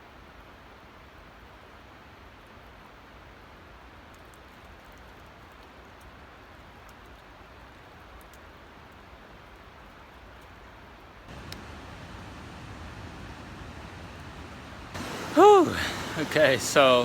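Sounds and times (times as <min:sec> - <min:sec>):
faint ticks: 0:11.3 - 0:14.4
creek and waterfall rushing: 0:11.3 - 0:17.0.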